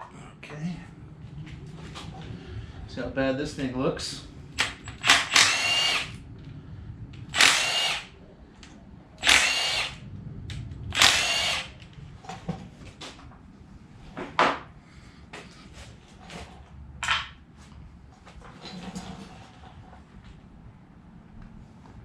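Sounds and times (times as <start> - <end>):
power tool bursts: 4.6 - 6.2, 7.3 - 8.1, 9.2 - 10.0, 10.9 - 11.8.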